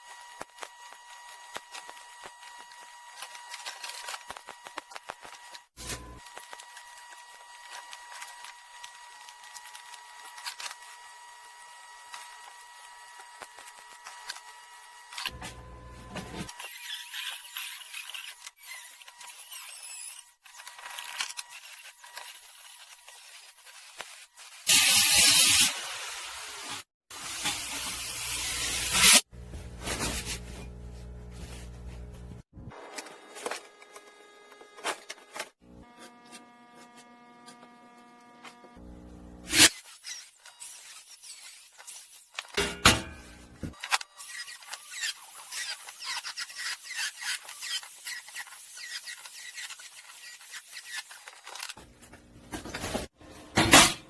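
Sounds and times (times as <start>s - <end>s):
arc welding crackle: 0.0s - 15.4s, 21.4s - 29.3s
welding arc hissing and crackling: 21.8s - 29.3s
welder humming: 33.4s - 39.7s.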